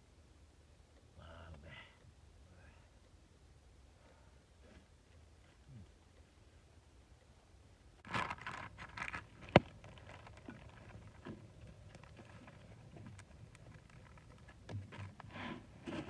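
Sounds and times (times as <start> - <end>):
rustling handling noise: 8.0 - 16.0.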